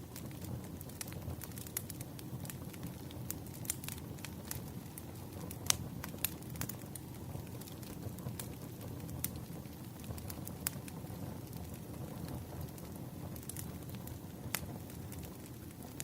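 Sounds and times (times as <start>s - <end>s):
fire popping: 0.0s - 16.0s
firewood crackling: 0.0s - 16.0s
low rumble of fire: 0.0s - 16.0s.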